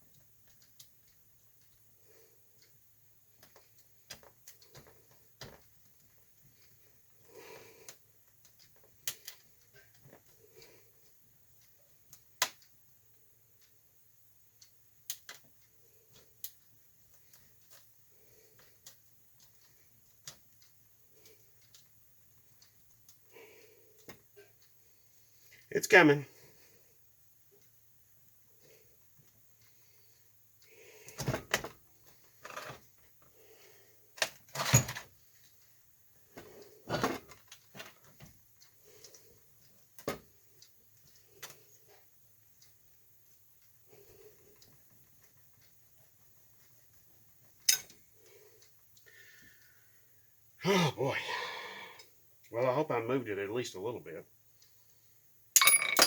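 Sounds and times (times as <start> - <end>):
hand tools clicking and tapping: 47.6 - 48.0, 55.6 - 56.0
hand tools clicking on metal: 47.6 - 48.0.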